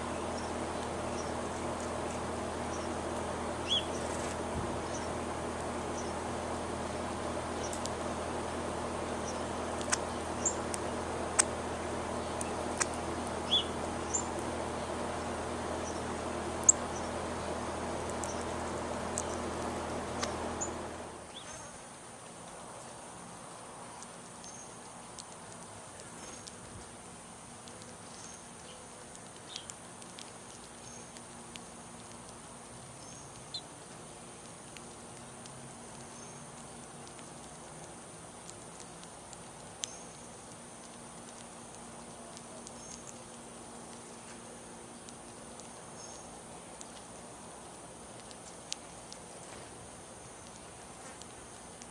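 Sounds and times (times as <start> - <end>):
bird chirps: 0.0 - 1.6, 3.6 - 4.2, 4.8 - 5.2, 9.0 - 11.5, 12.1 - 14.4
high background drone: 0.0 - 21.3
small birds chirping: 0.0 - 51.9
steady background hiss: 0.0 - 51.9
sharp clicks: 0.1 - 21.1
faint light ticks: 27.6 - 44.4.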